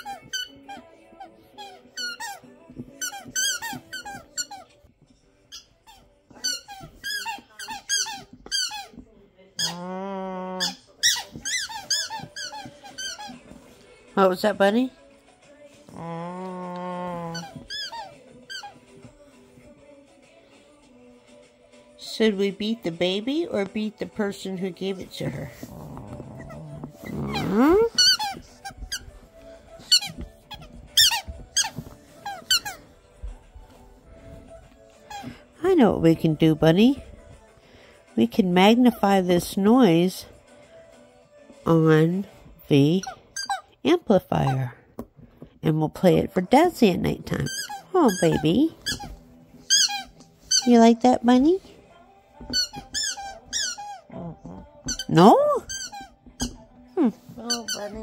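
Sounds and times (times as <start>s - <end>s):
squeaky toy squeaking: 0.0s - 4.8s, 5.5s - 9.0s, 9.6s - 9.9s, 10.6s - 13.6s, 17.1s - 19.0s, 26.4s - 29.2s, 29.8s - 32.9s, 35.0s - 35.4s, 42.8s - 44.7s, 47.2s - 51.6s, 52.5s - 56.6s, 57.3s - 58.0s.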